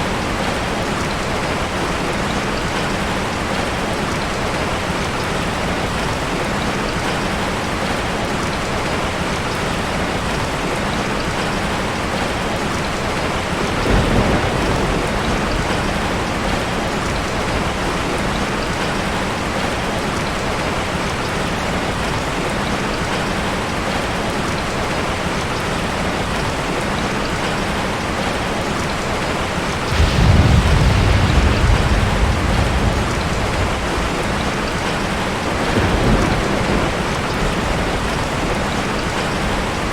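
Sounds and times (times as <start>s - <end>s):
heavy rain falling: 0.0s - 39.9s
thunder rumbling: 13.5s - 18.5s, 29.7s - 39.9s.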